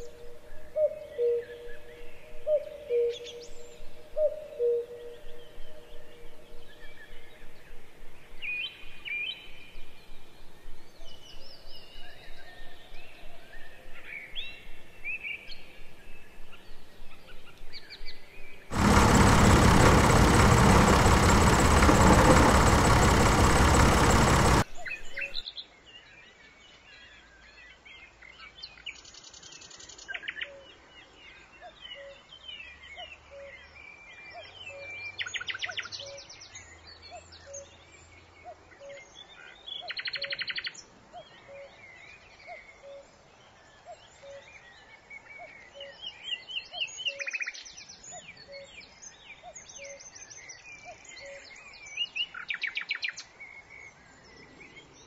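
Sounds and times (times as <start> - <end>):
small birds chirping: 18.7 - 24.7.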